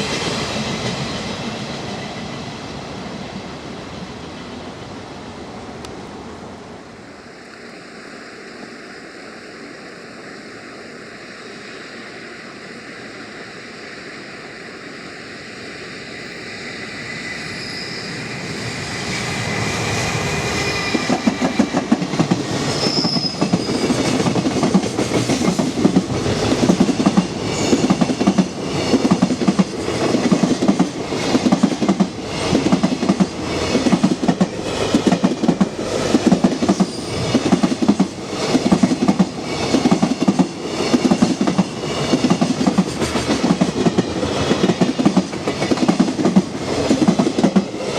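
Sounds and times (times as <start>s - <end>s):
train approaching hiss: 0.0s - 47.9s
faint high whine: 5.5s - 21.2s.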